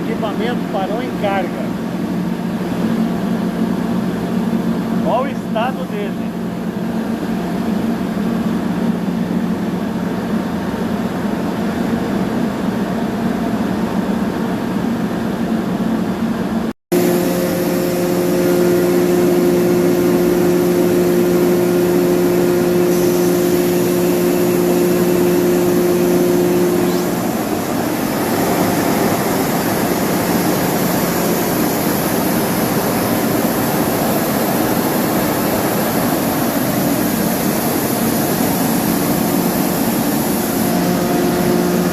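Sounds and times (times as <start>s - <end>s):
air compressor humming: 0.0s - 12.4s, 16.5s - 41.9s.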